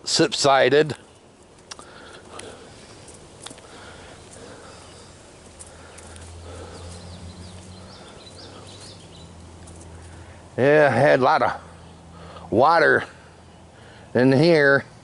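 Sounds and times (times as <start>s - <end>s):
footsteps on dirt trail: 1.8s - 10.4s.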